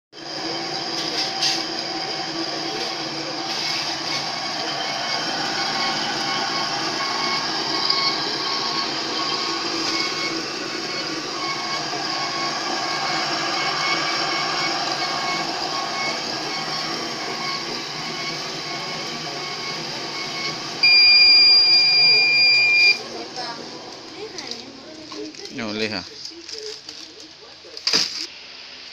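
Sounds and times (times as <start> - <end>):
band saw cutting metal: 0.2 - 22.5
blade squealing: 0.6 - 23.0
loud steady beep: 3.6 - 23.0.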